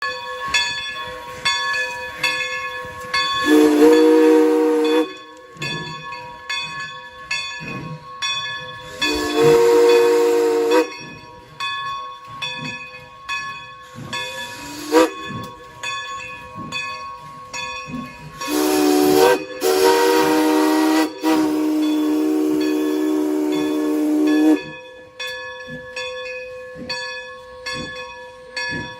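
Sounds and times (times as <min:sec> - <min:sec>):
steady ringing bell: 0:00.0 - 0:18.6, 0:21.6 - 0:28.9
steam whistle blasts: 0:03.4 - 0:05.6, 0:08.8 - 0:11.1, 0:14.5 - 0:15.3, 0:18.4 - 0:24.7
steam hissing: 0:08.6 - 0:11.5, 0:13.8 - 0:24.8.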